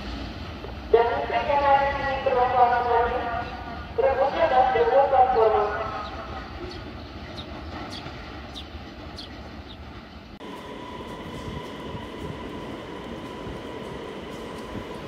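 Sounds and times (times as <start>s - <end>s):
freight train rumbling: 0.0s - 15.0s
electric train whine: 9.5s - 15.0s.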